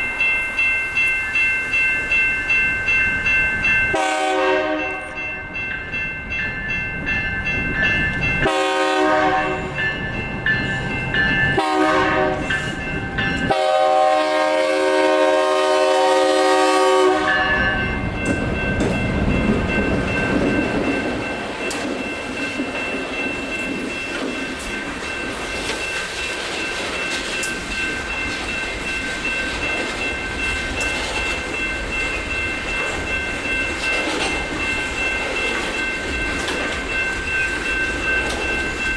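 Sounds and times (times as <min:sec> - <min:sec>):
electronic crossing bells ringing: 0:00.0 - 0:38.9
locomotive air horn blasts: 0:03.9 - 0:05.1, 0:08.4 - 0:09.7, 0:11.6 - 0:12.5, 0:13.5 - 0:17.6
train wheel clatter: 0:17.5 - 0:38.9.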